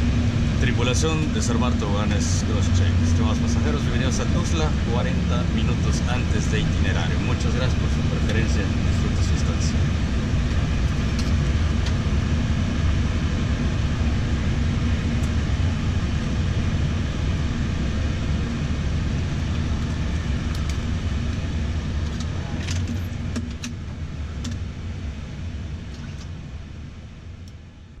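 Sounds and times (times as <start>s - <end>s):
cockpit fans humming: 0.0s - 28.0s.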